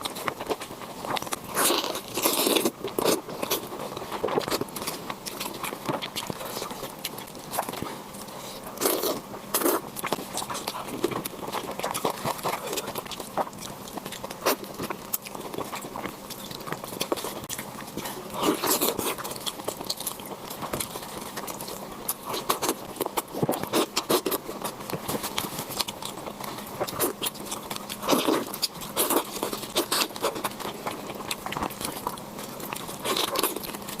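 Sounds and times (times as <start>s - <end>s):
chewing with wet clicks and smacks: 0.0s - 34.0s.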